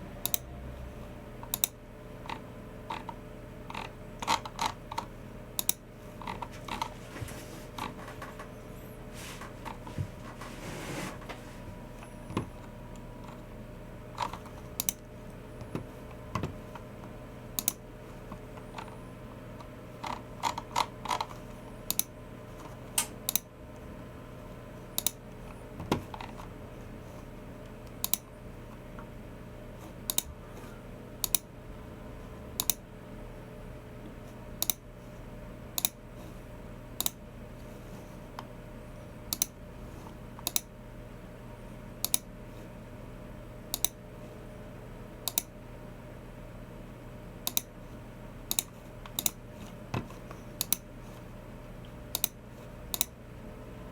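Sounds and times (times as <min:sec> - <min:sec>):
mouse clicks: 0:52.1 - 0:53.2.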